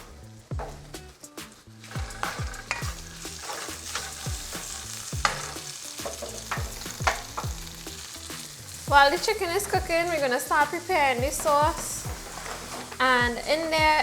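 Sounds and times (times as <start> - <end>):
chicken sizzling in hot oil: 0.0 - 14.0
utensil scraping a pan: 1.8 - 8.1, 9.5 - 13.7.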